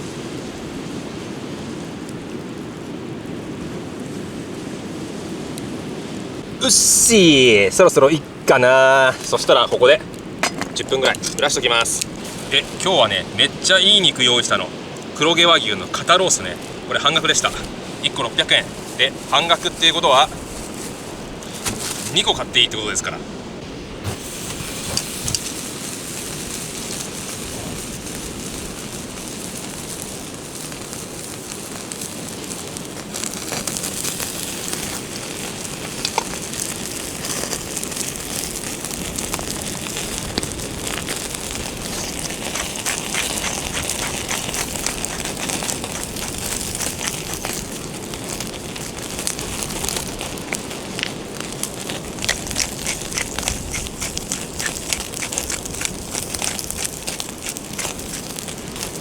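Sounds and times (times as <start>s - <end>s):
sharp pops of fire: 0.0s - 59.0s
wood fire crackling: 0.0s - 59.0s
steady hiss: 3.4s - 59.0s.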